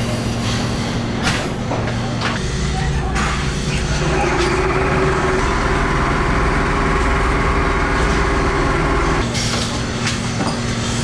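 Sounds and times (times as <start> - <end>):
workshop machinery humming: 2.4 - 9.3.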